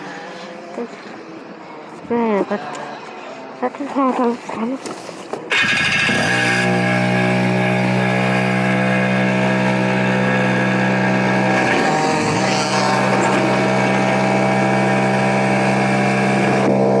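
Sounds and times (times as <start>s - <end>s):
two-stroke kart engine running: 5.5s - 17.0s.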